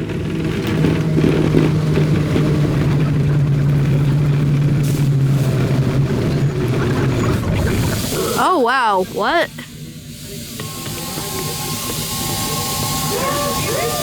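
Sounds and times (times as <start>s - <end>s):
subway car hum: 0.0s - 14.0s
subway car rumble: 0.0s - 14.0s.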